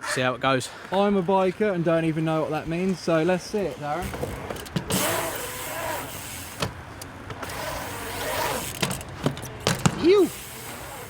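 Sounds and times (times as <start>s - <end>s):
bike tyres rolling on concrete: 0.0s - 11.0s
bike knocking on ramp edges: 2.6s - 6.0s, 6.6s - 10.3s.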